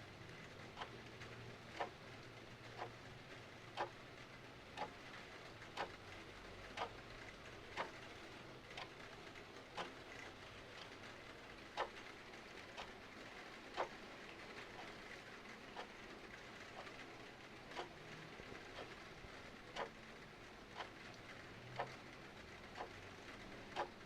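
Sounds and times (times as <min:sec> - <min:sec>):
clock ticking: 0:00.7 - 0:02.0, 0:02.7 - 0:03.0, 0:03.7 - 0:04.0, 0:04.8 - 0:05.0, 0:05.7 - 0:06.1, 0:06.7 - 0:07.0, 0:07.7 - 0:08.0, 0:08.7 - 0:09.0, 0:11.7 - 0:12.1, 0:13.7 - 0:15.0, 0:16.7 - 0:22.1, 0:22.7 - 0:24.0.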